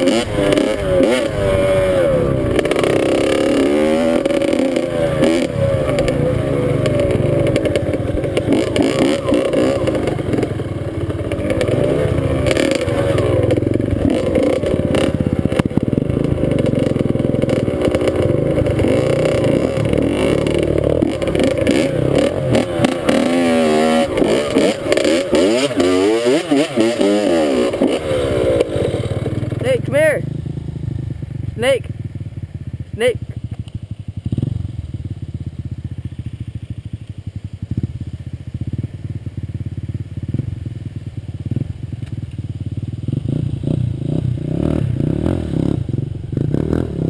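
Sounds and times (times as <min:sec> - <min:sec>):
dirt bike engine revving: 0:00.0 - 0:36.2, 0:42.7 - 0:47.0
clatter: 0:06.8 - 0:29.6.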